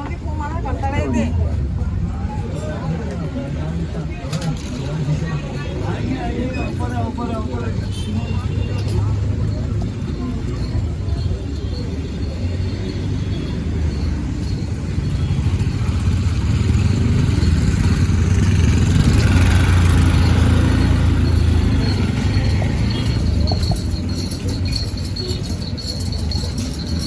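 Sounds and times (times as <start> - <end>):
train rumbling: 14.2 - 27.0
light rattling: 15.3 - 27.0.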